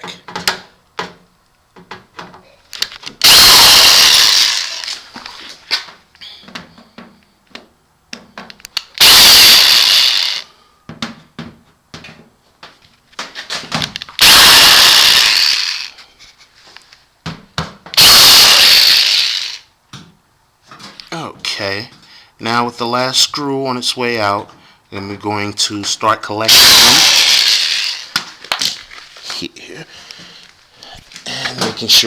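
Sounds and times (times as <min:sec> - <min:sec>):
power drill running: 0:03.2 - 0:05.1, 0:09.0 - 0:10.5, 0:14.2 - 0:16.0, 0:18.0 - 0:19.7, 0:26.5 - 0:28.2.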